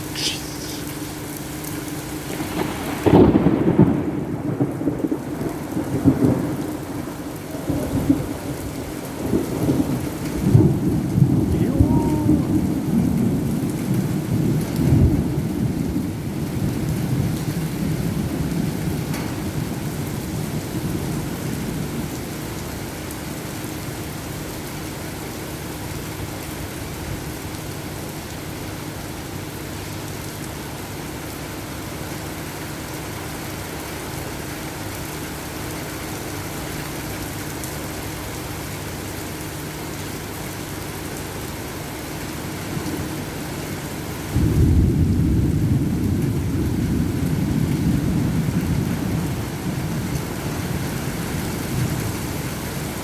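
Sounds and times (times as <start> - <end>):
heavy rain falling: 0.0 - 53.0
thunder rumbling: 2.2 - 22.1, 44.3 - 53.0
loud thunderclap: 2.4 - 8.6, 44.4 - 50.1.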